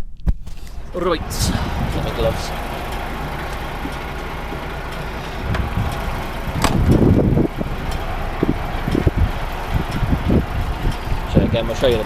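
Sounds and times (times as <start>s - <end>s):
low bumps: 0.0s - 12.0s
lorry diesel engine idling: 0.6s - 12.0s
sharp knock: 6.6s - 6.8s.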